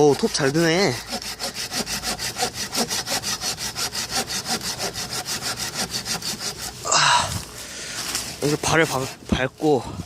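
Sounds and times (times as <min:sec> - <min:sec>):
hand saw cutting wood: 0:00.0 - 0:06.9, 0:08.0 - 0:09.8.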